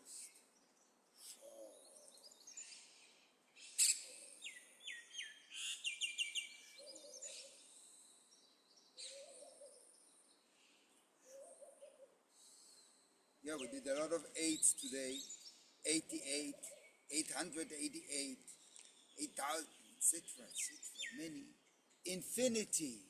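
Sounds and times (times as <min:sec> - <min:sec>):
soft low hooting calls: 0:10.6 - 0:21.5
high chirps: 0:13.5 - 0:21.5.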